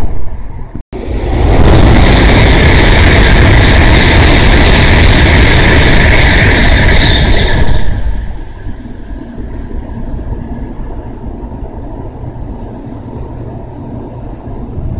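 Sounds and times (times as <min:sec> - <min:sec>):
bullet train passing: 0:00.0 - 0:14.9
low steady rumble: 0:07.9 - 0:14.9.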